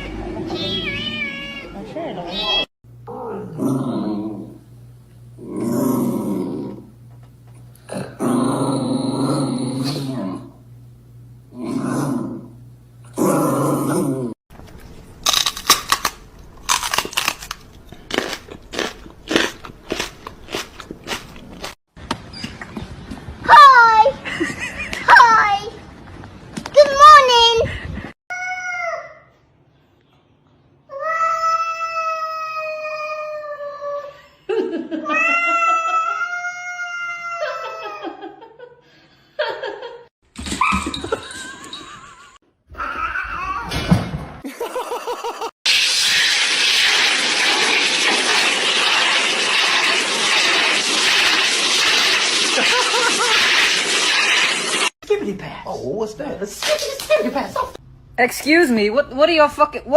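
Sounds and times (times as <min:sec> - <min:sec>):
cat yowling: 0:00.0 - 0:02.7
animal crunching something hard: 0:15.2 - 0:21.8.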